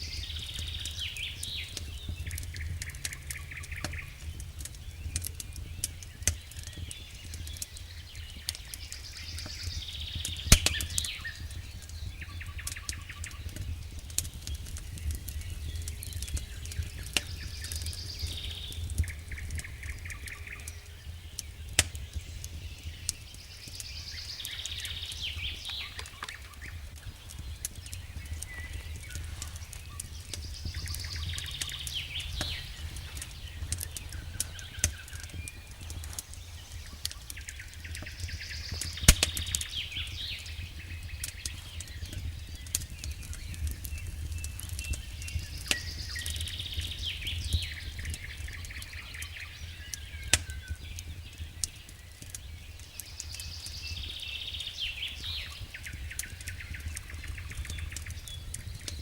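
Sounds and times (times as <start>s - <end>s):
wood fire crackling and popping: 0.0s - 59.0s
high chirping calls: 23.8s - 50.4s.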